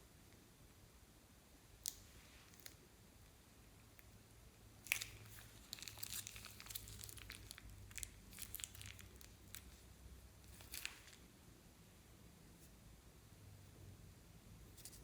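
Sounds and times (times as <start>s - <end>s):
plastic bags crinkling: 4.8s - 9.8s, 10.4s - 11.2s.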